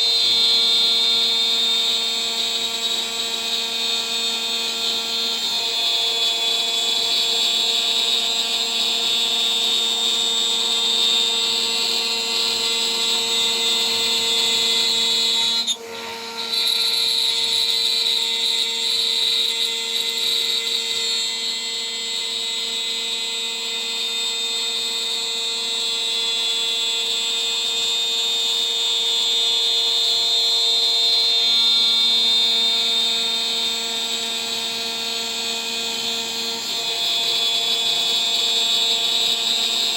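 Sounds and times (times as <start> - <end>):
end mill cutting metal: 0.0 - 27.8.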